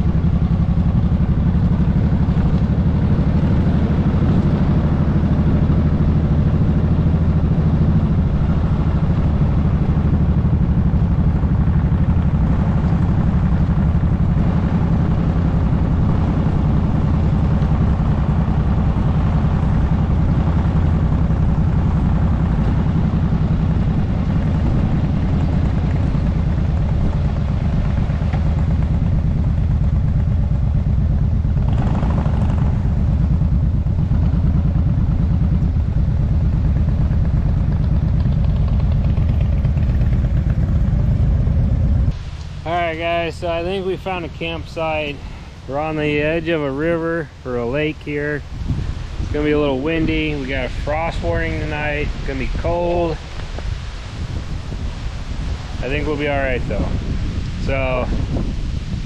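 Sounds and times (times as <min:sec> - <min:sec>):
motorcycle engine cruising: 0:00.0 - 0:59.0
road and wind noise: 0:00.0 - 0:59.0.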